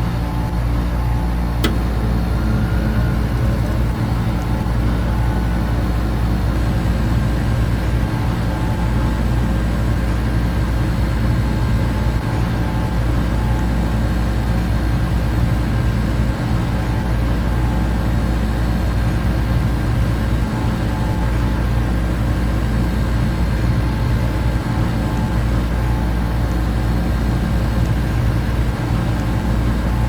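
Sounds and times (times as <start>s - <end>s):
air conditioner hum: 0.0s - 18.0s
electric fans whirring: 0.0s - 30.0s
faint steady tones: 0.0s - 30.0s.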